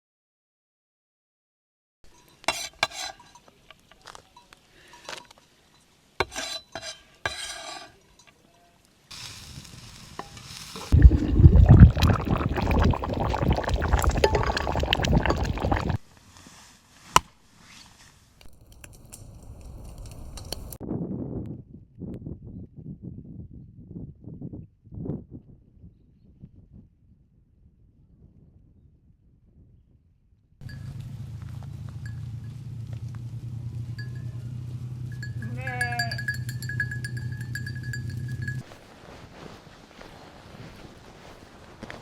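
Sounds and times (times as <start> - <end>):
stirring and scraping: 2.1 - 8.5, 10.2 - 16.0, 35.1 - 38.7
cookware clinking and scraping: 2.1 - 8.7, 35.1 - 38.6.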